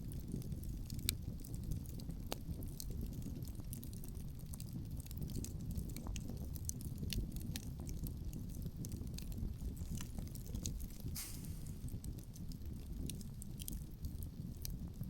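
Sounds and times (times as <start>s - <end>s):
low rumble of wind and flame: 0.0s - 15.0s
wood fire crackling: 0.0s - 15.0s
sharp pops and snaps: 7.0s - 14.9s
brief loud hiss: 11.2s - 11.8s.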